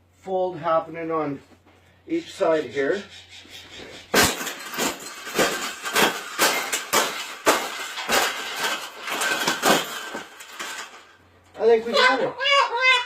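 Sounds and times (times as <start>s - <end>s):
scraping: 2.2s - 12.0s
metal cage clanking and knocking: 4.1s - 11.1s.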